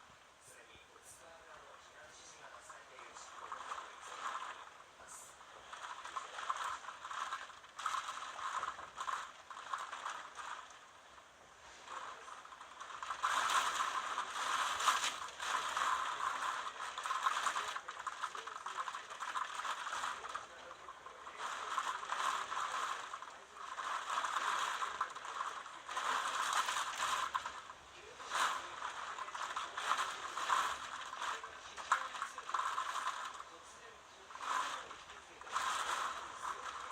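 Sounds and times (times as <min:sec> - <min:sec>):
wind-driven rain hissing: 0:00.0 - 0:36.9
buffeted objects rattling: 0:11.7 - 0:33.6.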